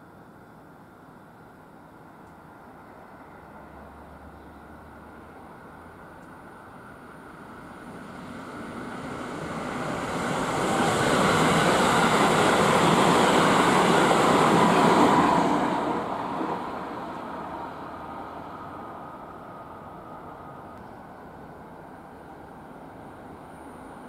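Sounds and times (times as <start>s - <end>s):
electric train passing: 2.6s - 24.0s.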